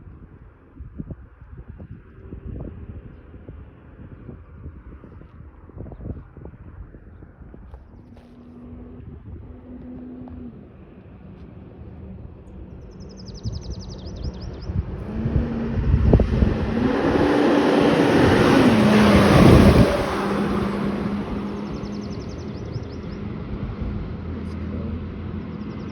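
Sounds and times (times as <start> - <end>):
road noise: 0.1 - 25.9
emergency vehicle engine: 14.7 - 25.9.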